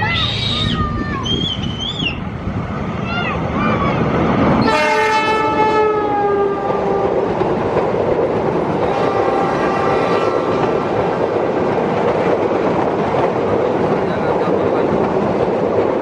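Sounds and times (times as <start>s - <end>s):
train rumbling past: 0.0s - 16.0s
train horn: 4.6s - 7.4s, 8.8s - 10.8s.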